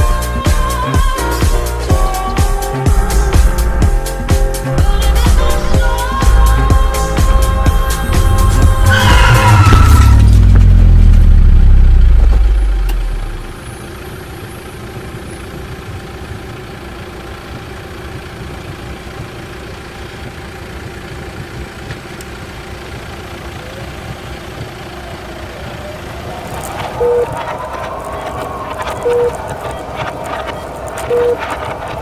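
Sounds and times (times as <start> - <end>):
car engine idling: 0.0 - 32.0
deep loud rumble: 1.8 - 13.6, 24.6 - 32.0
faint rising tone: 2.7 - 13.5, 25.6 - 32.0.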